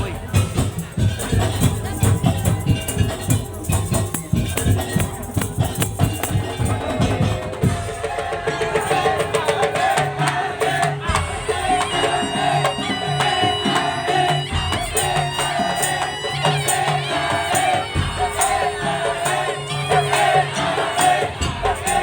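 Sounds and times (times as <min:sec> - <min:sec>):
steady bass pattern: 0:00.0 - 0:07.2
wavering melody line: 0:00.0 - 0:07.6
slit drums and drums beating: 0:00.0 - 0:22.0.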